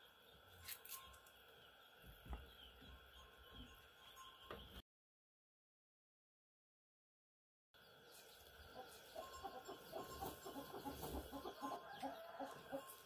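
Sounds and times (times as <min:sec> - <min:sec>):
chickens clucking: 0:08.5 - 0:13.0.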